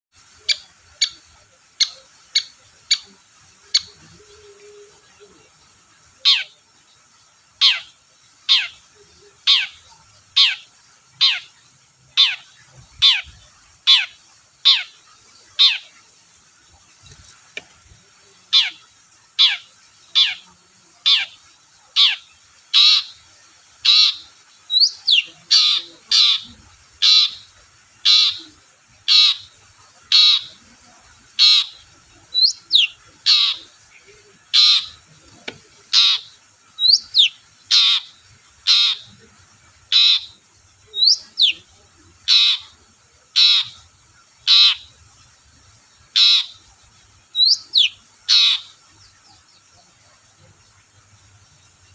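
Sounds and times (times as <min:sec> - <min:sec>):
shrike harsh calls: 0:23.8 - 0:35.2, 0:35.8 - 0:45.0, 0:46.1 - 0:46.8.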